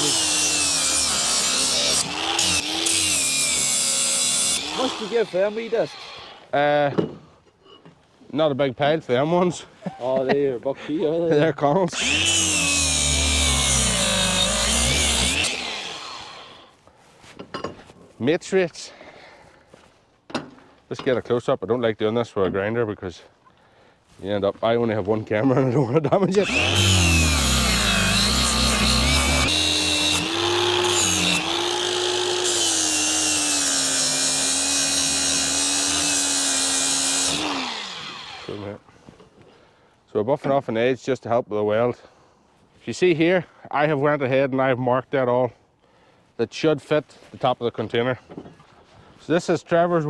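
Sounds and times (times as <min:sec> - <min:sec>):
angle grinder grinding steel: 0:00.0 - 0:06.5, 0:12.0 - 0:16.7, 0:26.4 - 0:38.7.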